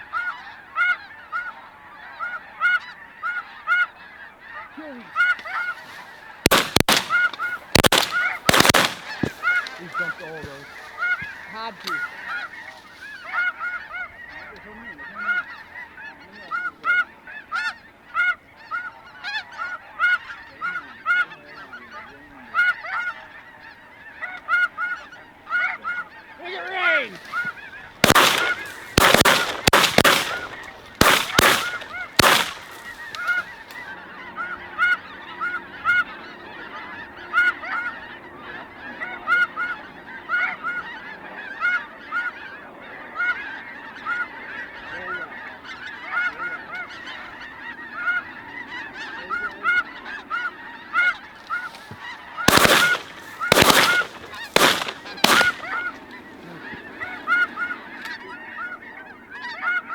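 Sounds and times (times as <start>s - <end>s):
geese honking: 0.0s - 59.9s
shotgun shots: 6.4s - 10.5s, 28.0s - 33.5s, 52.5s - 56.0s.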